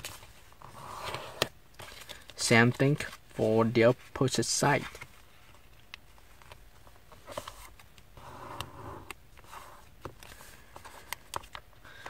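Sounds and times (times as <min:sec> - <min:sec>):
paper sliding rustle: 0:00.0 - 0:05.6
paper being folded and creased: 0:00.0 - 0:08.0.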